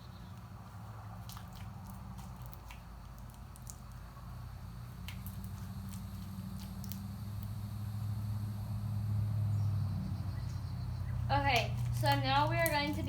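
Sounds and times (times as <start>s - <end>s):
steady low hum: 0.0s - 13.0s
hands squishing slime: 0.3s - 4.1s, 4.9s - 7.1s.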